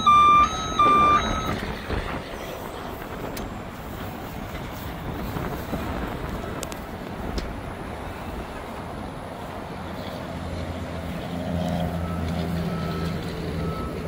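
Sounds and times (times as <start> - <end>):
diesel truck engine running: 0.0 - 14.0
wind on microphone: 0.8 - 9.3.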